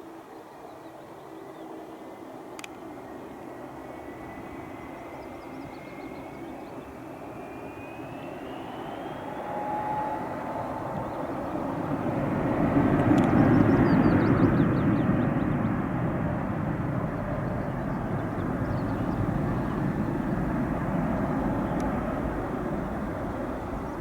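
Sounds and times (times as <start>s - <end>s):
jet engines at takeoff power: 0.0s - 24.0s
thin high whine: 2.8s - 12.2s.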